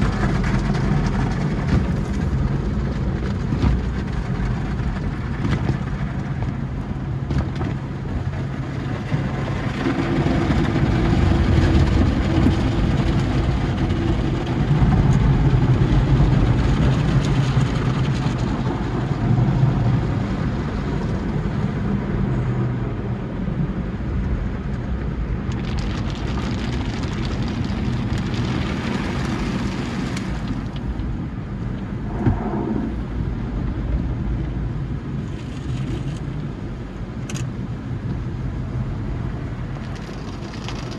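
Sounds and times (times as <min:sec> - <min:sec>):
car wash machine rumble: 0:00.0 - 0:40.9.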